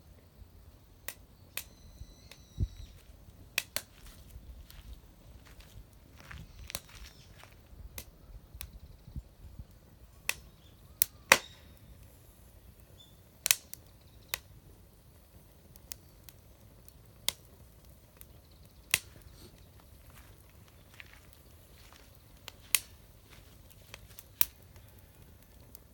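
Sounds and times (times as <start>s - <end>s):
wood fire crackling and popping: 0.9s - 8.8s, 9.6s - 25.9s.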